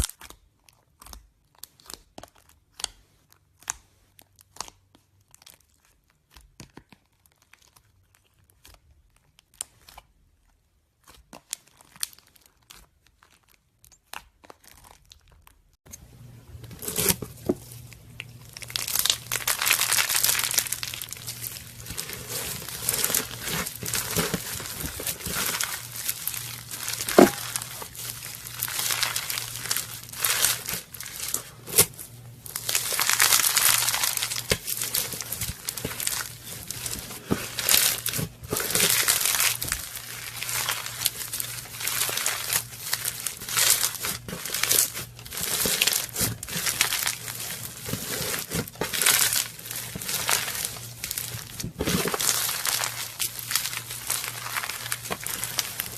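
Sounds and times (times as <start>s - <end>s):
slime squeezed by hand: 18.1s - 55.9s.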